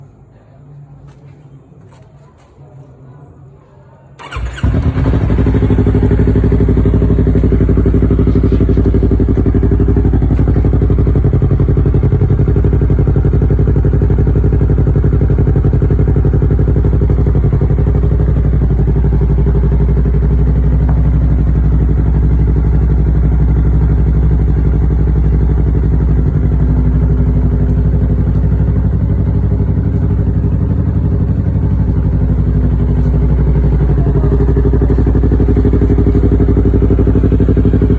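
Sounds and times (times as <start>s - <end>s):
motorcycle engine starting and idling: 1.0s - 2.6s, 4.2s - 37.9s.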